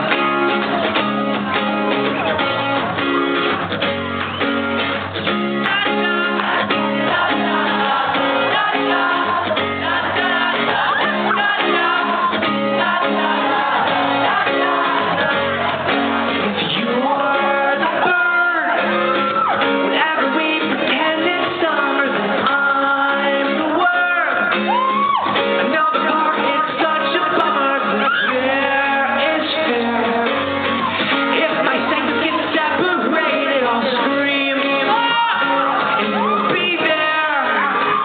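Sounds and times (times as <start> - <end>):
crowd shouting: 0.0 - 22.7, 23.9 - 25.4, 27.8 - 38.0
live band playing pop song: 0.0 - 38.0
person singing: 5.6 - 38.0.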